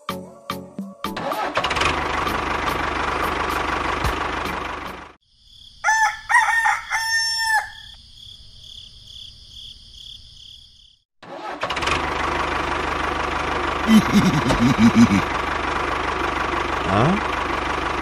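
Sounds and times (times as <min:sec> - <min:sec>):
tractor engine: 0:01.2 - 0:05.2, 0:11.2 - 0:18.0
rooster crowing: 0:05.8 - 0:08.0.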